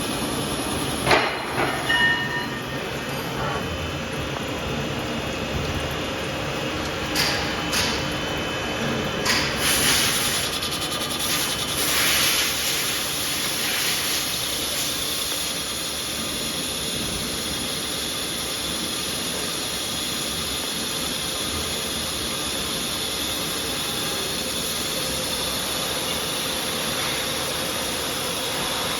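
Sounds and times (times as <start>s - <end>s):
machine mechanical hiss: 9.2s - 28.9s.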